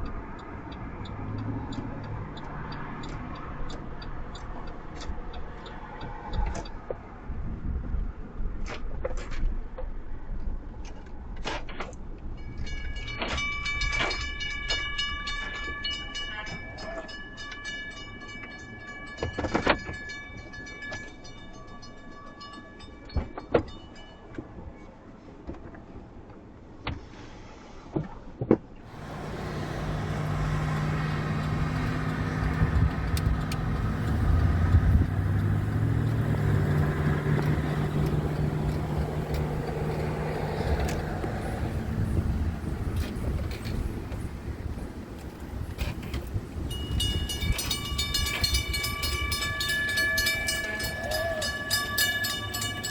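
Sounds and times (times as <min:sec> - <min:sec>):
high-pitched wheel squeal: 0:28.9 - 0:44.3, 0:46.9 - 0:52.9
train wheels clicking over rail joints: 0:28.9 - 0:52.9.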